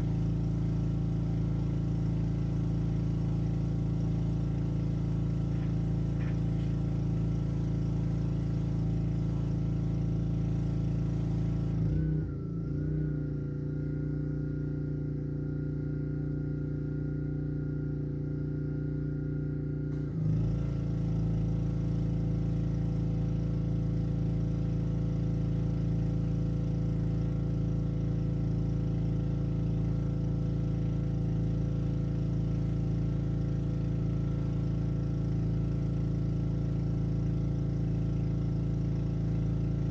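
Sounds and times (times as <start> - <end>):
pressure washer engine running: 0.0 - 12.0, 20.2 - 39.9.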